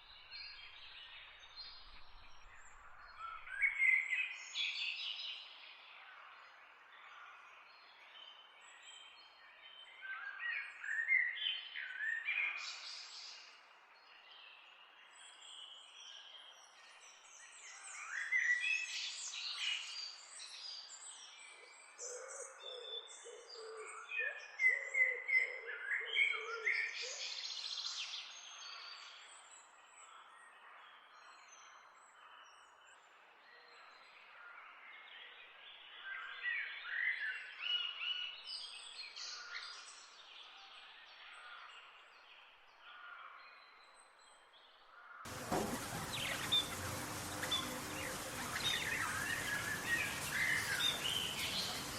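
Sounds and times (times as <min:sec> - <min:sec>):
small birds chirping: 0:45.3 - 0:51.9.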